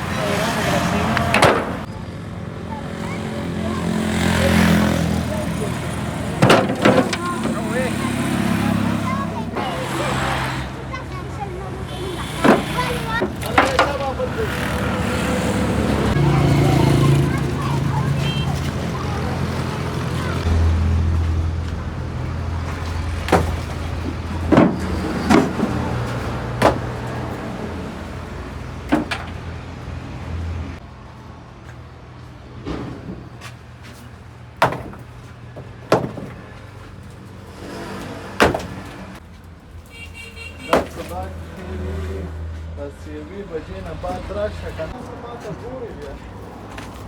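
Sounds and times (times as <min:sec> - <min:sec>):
sharp hard knocks: 0:26.5 - 0:27.1, 0:34.6 - 0:36.4, 0:38.4 - 0:39.0.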